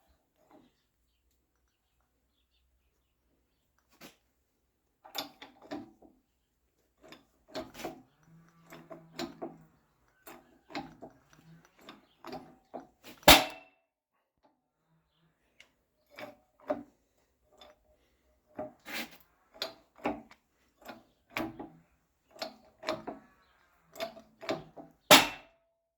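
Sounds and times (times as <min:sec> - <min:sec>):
objects clattering as handled: 0:06.8 - 0:13.5.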